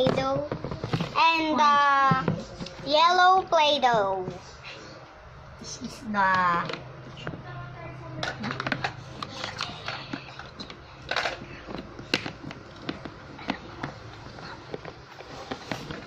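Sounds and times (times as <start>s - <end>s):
plastic toys clicking and clattering: 8.2s - 16.0s.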